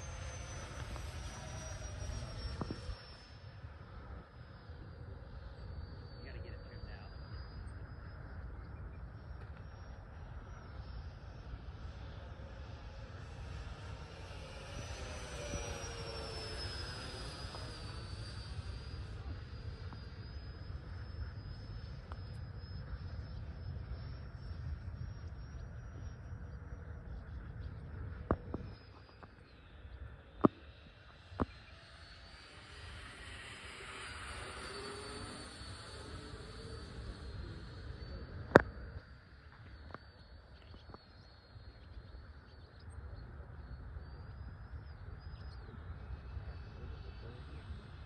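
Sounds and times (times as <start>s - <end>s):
wind rumble on microphone: 0.0s - 3.0s, 3.7s - 31.6s
distant electric fan whine: 0.0s - 48.0s
wind rumbling on microphone: 0.7s - 3.0s.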